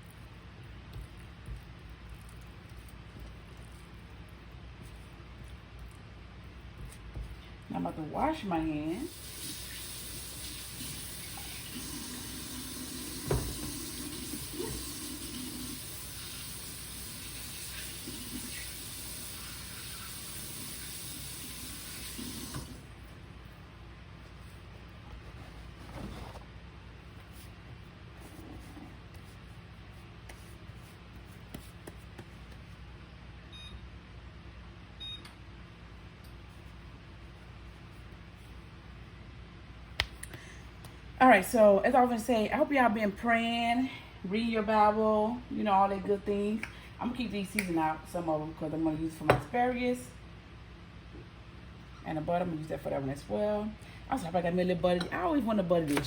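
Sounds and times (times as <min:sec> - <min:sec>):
faint room hum: 0:00.0 - 0:56.0
tap water running: 0:09.1 - 0:23.0.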